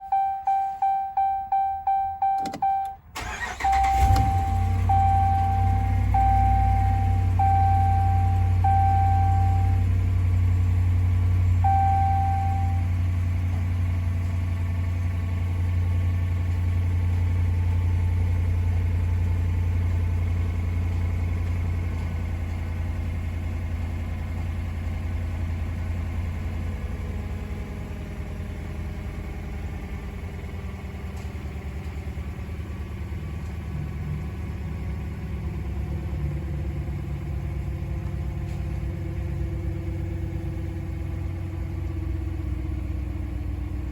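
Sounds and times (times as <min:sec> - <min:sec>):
short electronic beep: 0:00.0 - 0:09.9, 0:11.6 - 0:12.9
truck engine idling: 0:00.1 - 0:43.9.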